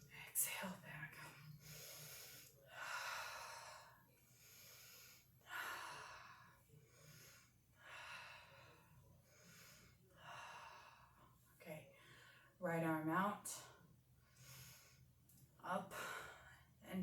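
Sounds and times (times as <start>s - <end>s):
person breathing slowly: 1.5s - 11.3s.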